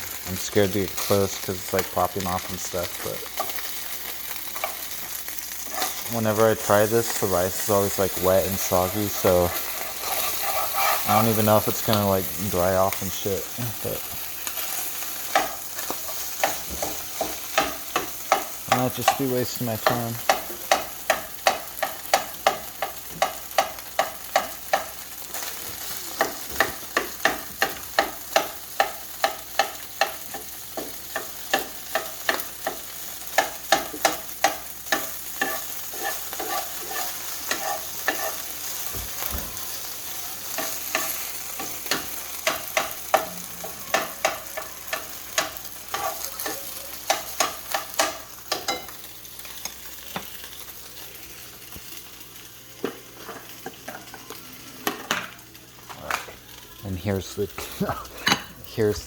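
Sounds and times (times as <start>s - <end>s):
rice sizzling in hot oil: 0.0s - 59.0s
utensil scraping and knocking pan: 8.8s - 11.3s, 33.7s - 38.4s.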